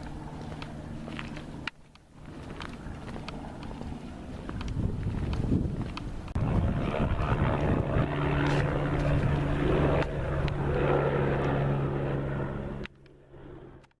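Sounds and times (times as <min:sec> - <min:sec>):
propeller aircraft engine: 0:00.0 - 0:14.0.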